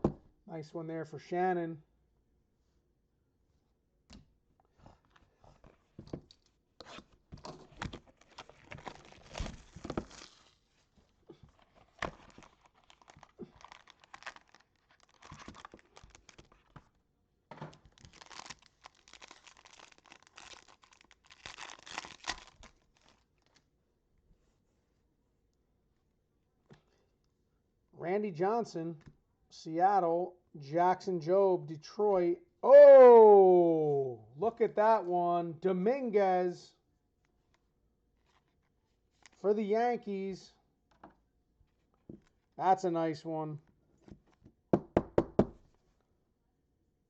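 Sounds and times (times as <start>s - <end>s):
wrapper being torn and crinkled: 8.0s - 10.6s, 11.7s - 16.7s, 17.8s - 23.6s.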